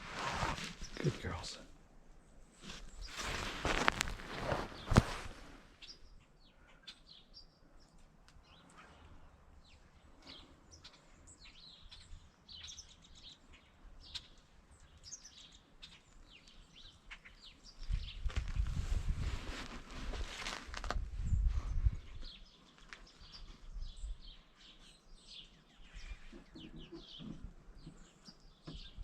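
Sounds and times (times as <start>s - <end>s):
low rustling noise: 0.0s - 6.0s, 17.8s - 24.4s
small birds chirping: 0.4s - 18.8s, 21.2s - 29.0s.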